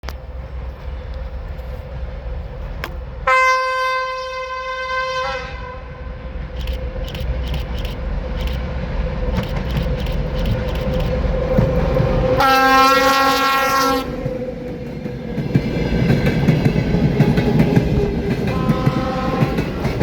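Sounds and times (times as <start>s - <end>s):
locomotive horn blast: 3.3s - 6.2s, 12.3s - 14.2s, 18.5s - 20.0s
locomotive engine rumbling: 5.5s - 20.0s
train wheels clicking on rails: 6.2s - 20.0s.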